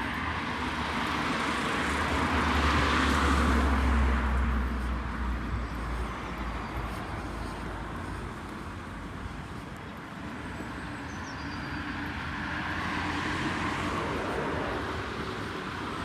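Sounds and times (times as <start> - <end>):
vehicle passing: 0.0 - 8.2, 11.9 - 16.0
city street traffic: 0.0 - 16.0.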